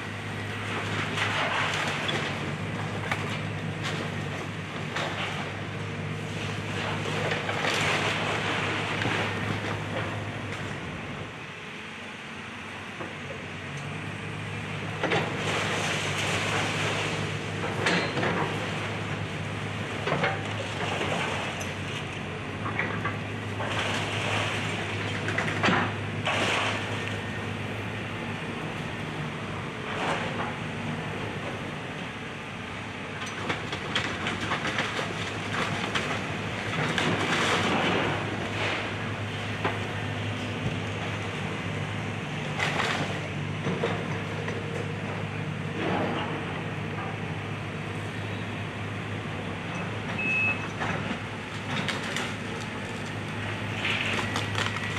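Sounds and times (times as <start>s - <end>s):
excavator diesel engine hum: 0.0s - 54.9s
wood splintering and debris crashing: 51.5s - 54.9s.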